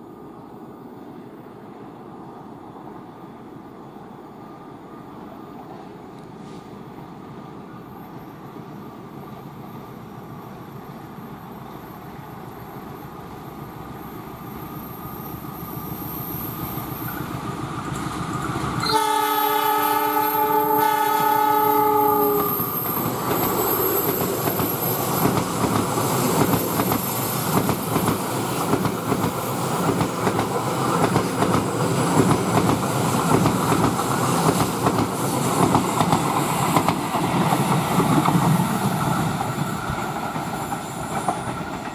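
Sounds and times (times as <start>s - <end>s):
train rumbling and clattering: 12.8s - 41.9s
train horn blast: 18.8s - 22.6s.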